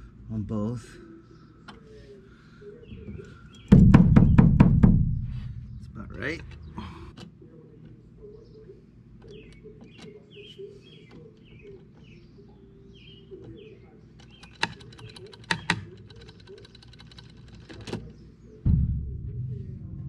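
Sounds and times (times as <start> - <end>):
small bird chirping: 8.0 - 18.6.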